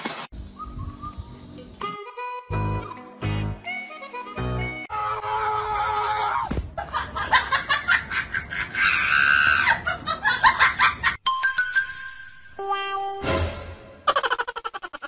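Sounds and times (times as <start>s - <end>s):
people laughing hard: 6.8s - 11.2s, 14.1s - 15.0s.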